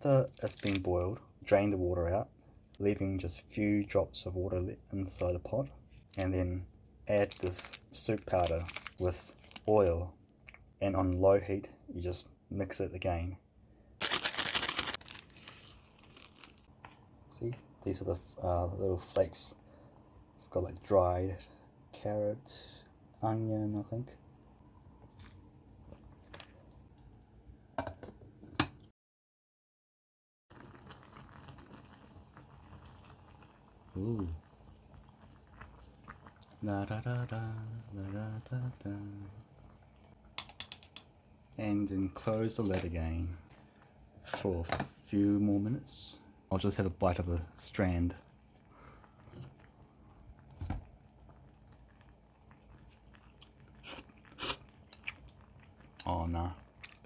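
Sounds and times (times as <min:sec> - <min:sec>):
water boiling with bubbling: 0:24.4 - 0:27.7, 0:30.5 - 0:45.3, 0:46.8 - 0:57.0
biting and chewing noodles: 0:51.0 - 0:56.0.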